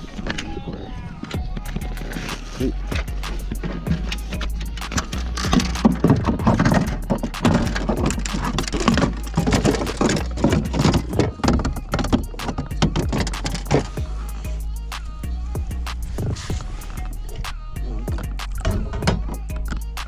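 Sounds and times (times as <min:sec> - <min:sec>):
knocking and rattling on a kayak: 0:00.0 - 0:14.0, 0:18.0 - 0:20.0.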